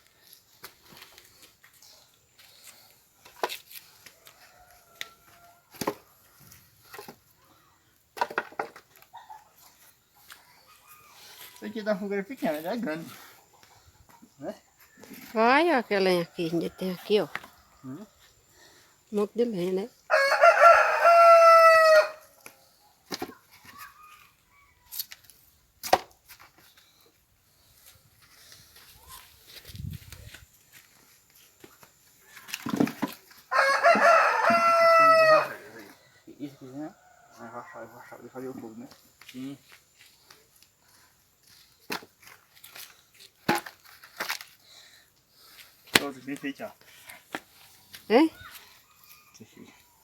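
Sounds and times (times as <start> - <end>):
firewood knocking and clacking: 8.2 - 9.0.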